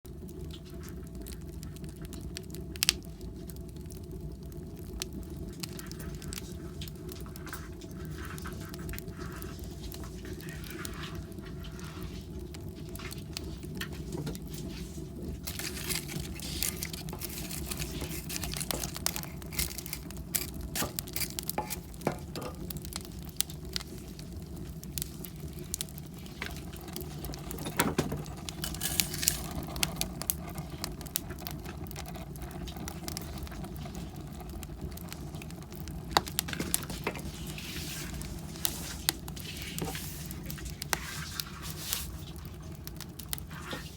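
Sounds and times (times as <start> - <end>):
wood fire crackling: 0.0 - 43.9
pet paws pattering: 6.3 - 22.2.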